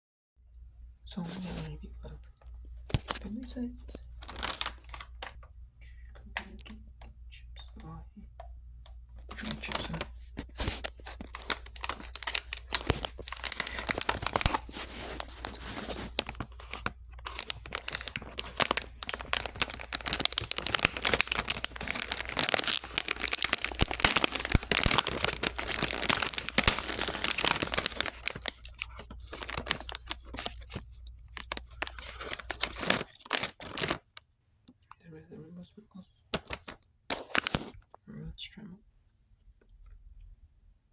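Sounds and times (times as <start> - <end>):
plastic package crinkling: 2.4 - 8.0, 9.1 - 34.2, 36.3 - 37.9.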